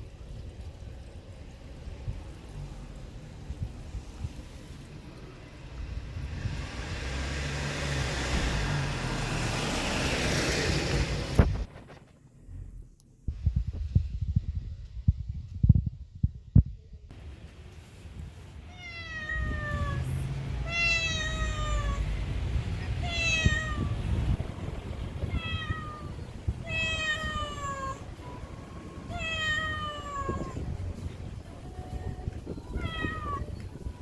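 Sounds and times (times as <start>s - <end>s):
low rumble: 11.2s - 18.5s, 19.4s - 34.0s
cat meowing: 18.7s - 22.2s, 22.8s - 24.4s, 25.2s - 28.3s, 29.0s - 30.8s, 32.6s - 33.6s.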